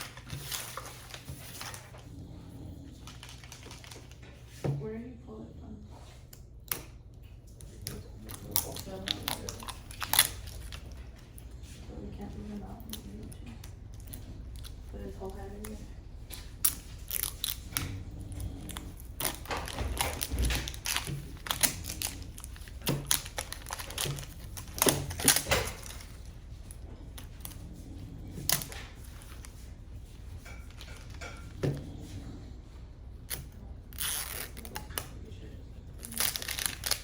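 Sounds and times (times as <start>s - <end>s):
packaging crinkling: 3.0s - 4.3s, 7.9s - 11.2s, 18.7s - 26.4s, 35.9s - 37.0s.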